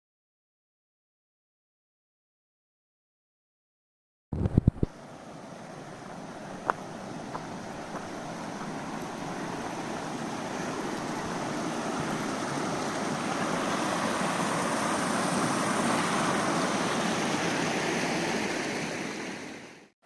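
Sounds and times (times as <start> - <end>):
stream rushing: 4.7 - 19.9.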